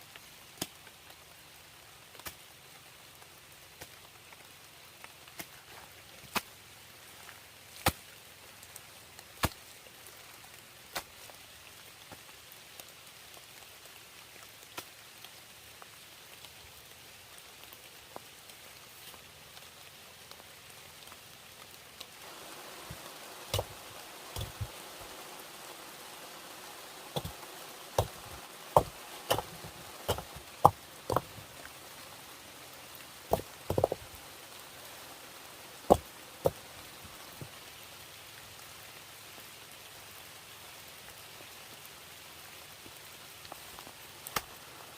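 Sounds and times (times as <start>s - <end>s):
rain falling: 0.0s - 44.9s
tool knocking on wood: 27.2s - 27.4s, 28.0s - 31.3s, 33.3s - 34.0s, 35.9s - 36.6s.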